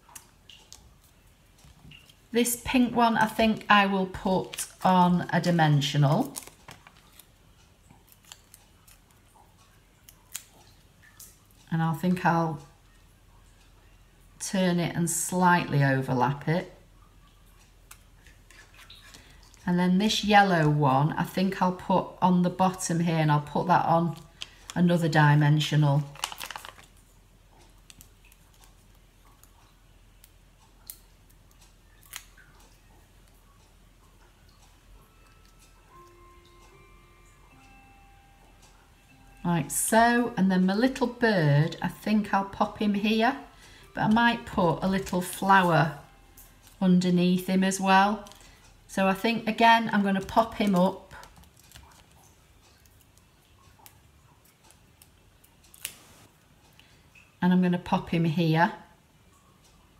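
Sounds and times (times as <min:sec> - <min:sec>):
paper rustling and ticks: 0:04.2 - 0:11.6, 0:17.6 - 0:20.2, 0:24.0 - 0:25.1, 0:25.7 - 0:33.4, 0:47.4 - 0:56.9.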